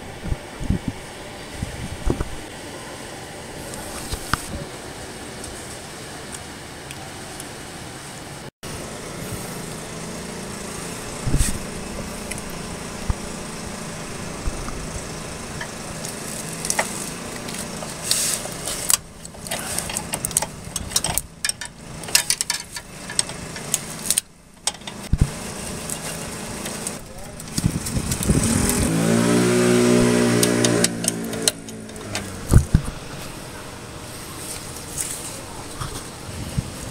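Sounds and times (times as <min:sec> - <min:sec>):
small engine running: 0:08.7 - 0:35.5.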